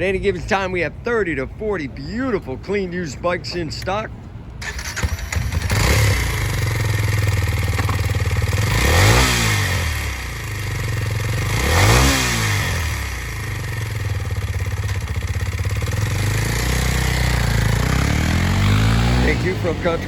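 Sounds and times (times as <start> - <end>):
motorcycle engine idling and revving: 4.6 - 20.0.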